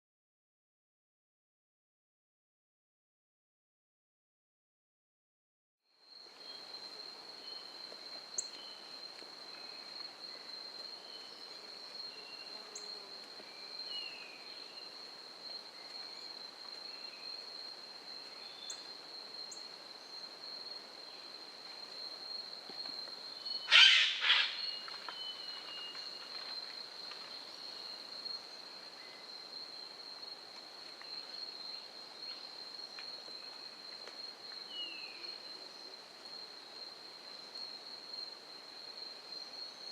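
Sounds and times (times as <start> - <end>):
high-pitched insect trill: 6.0 - 21.4, 22.0 - 39.9
loud brief bird call: 23.7 - 24.7.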